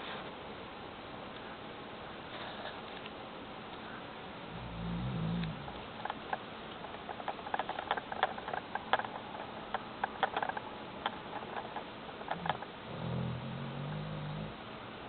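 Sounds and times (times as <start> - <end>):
dog snoring: 4.5 - 5.8, 12.4 - 14.6
faint irregular clicks: 5.4 - 12.7.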